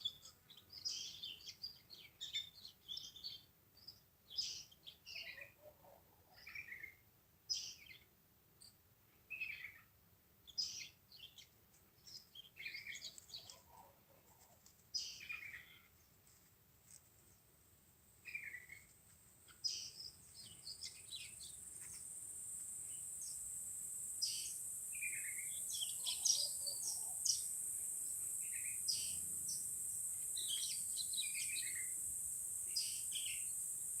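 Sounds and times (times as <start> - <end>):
birds chirping: 18.2 - 34.0
high-pitched insect drone: 20.8 - 34.0.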